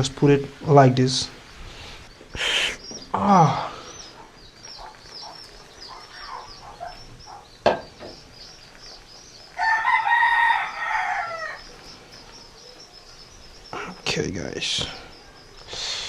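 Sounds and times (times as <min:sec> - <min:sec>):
faint high chirping: 0:00.0 - 0:16.0
rooster crowing: 0:09.5 - 0:11.8.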